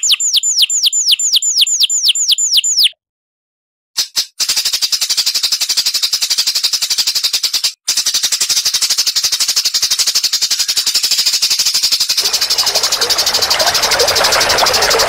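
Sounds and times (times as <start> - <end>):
songbird rapid high chips: 12.2 - 15.0.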